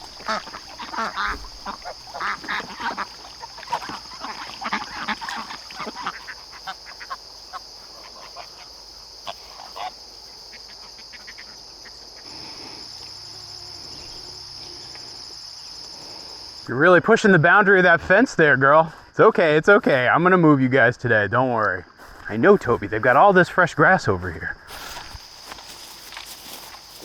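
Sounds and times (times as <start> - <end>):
ducks quacking: 0.0 - 12.8
crickets trilling: 0.0 - 27.0.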